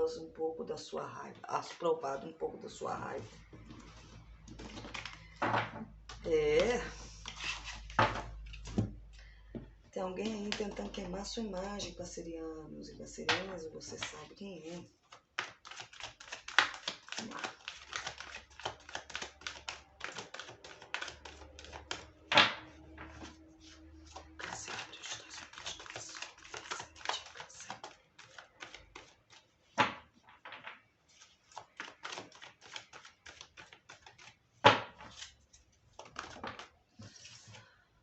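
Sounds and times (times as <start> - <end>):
cards being shuffled: 3.0 - 5.4, 6.0 - 9.1, 13.2 - 14.4, 15.0 - 37.7.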